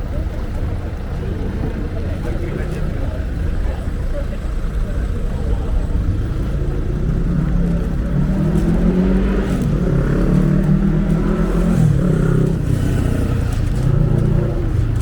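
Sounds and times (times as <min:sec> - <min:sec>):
constant low rumble: 0:00.0 - 0:15.0
vehicle engine humming: 0:00.0 - 0:15.0.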